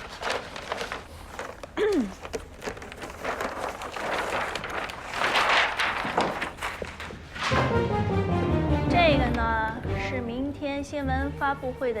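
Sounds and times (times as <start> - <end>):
paper sheet rustling and crackling: 0.0 - 7.8.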